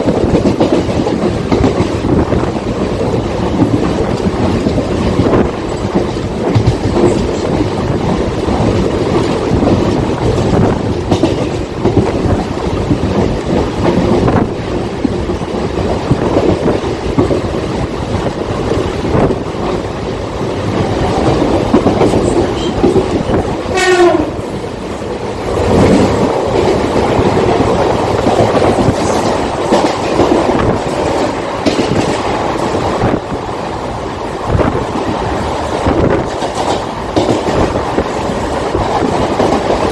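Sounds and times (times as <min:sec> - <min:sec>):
train wheels rumbling on track: 0:00.0 - 0:39.9
train horn blast: 0:23.7 - 0:24.5.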